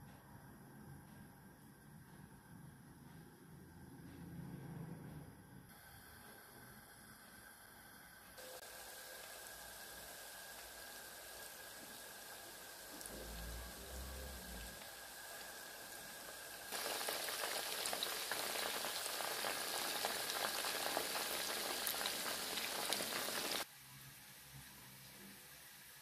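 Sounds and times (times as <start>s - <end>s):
chicken wings frying in oil: 8.4s - 23.7s.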